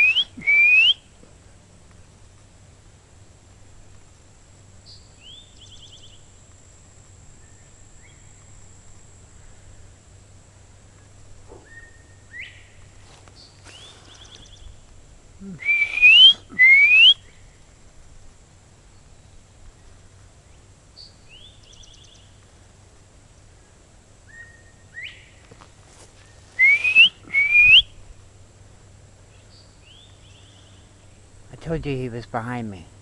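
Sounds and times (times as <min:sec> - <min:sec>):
person whistling: 0:00.0 - 0:01.0, 0:15.5 - 0:17.2, 0:26.6 - 0:27.8
bird whistling calls: 0:00.0 - 0:01.1, 0:11.6 - 0:12.8, 0:15.6 - 0:17.4, 0:24.3 - 0:25.4, 0:26.6 - 0:28.0.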